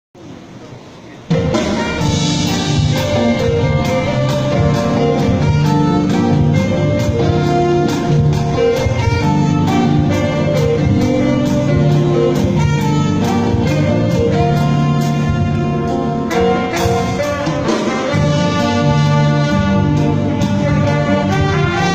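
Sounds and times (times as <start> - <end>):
drum and cymbal strikes: 1.2 - 21.9
orchestra playing hymn with brass: 1.3 - 21.9.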